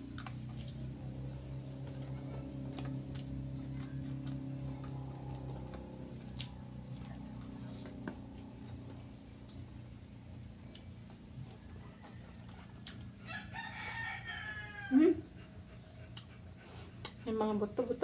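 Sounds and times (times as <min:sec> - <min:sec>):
person chewing wetly: 0:00.0 - 0:13.4, 0:16.0 - 0:16.4
low hum: 0:00.0 - 0:18.0.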